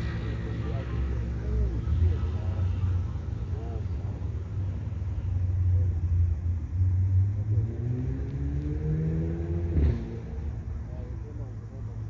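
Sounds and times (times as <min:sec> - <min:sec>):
vehicle engine speeding up: 0:07.0 - 0:10.6.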